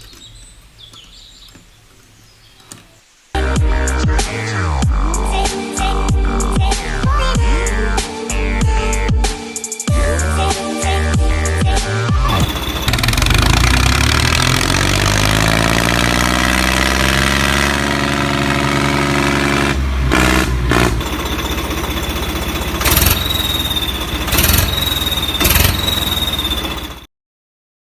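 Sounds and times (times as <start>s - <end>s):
engine running: 12.3s - 27.1s.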